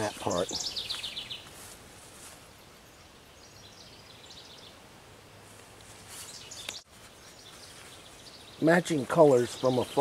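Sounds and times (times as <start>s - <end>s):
small birds chirping: 0.0s - 5.0s, 6.0s - 10.0s
faint outdoor ambience: 0.0s - 10.0s
short rustle: 1.4s - 2.5s, 5.4s - 8.3s.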